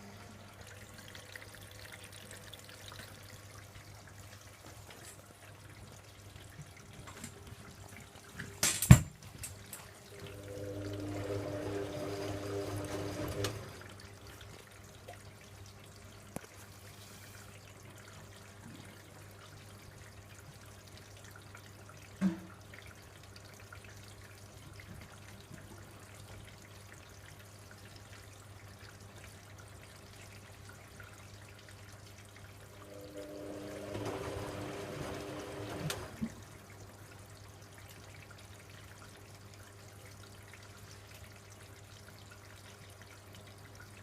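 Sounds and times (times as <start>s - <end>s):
water trickling and dripping: 0.0s - 44.0s
washing machine drum motor: 9.9s - 14.3s, 32.7s - 36.5s.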